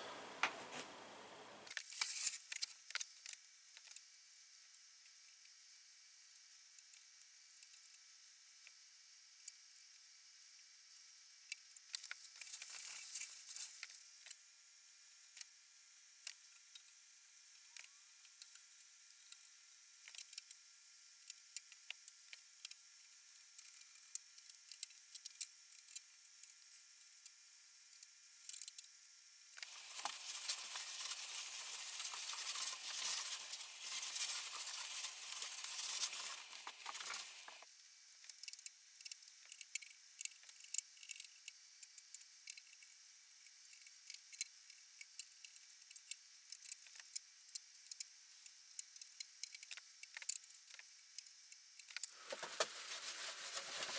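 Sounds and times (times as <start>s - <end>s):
scratchy rubbing on wood: 29.6s - 37.6s, 52.2s - 53.9s.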